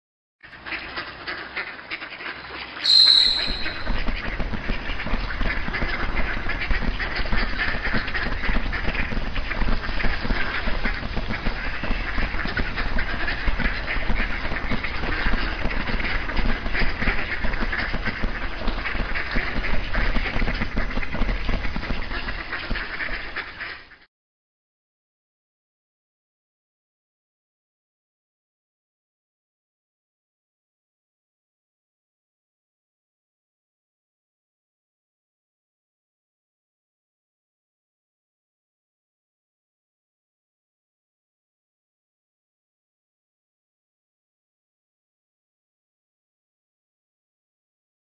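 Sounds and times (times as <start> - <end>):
cartoon birds quacking and honking: 0.5 - 24.0
short high tone: 2.8 - 4.0.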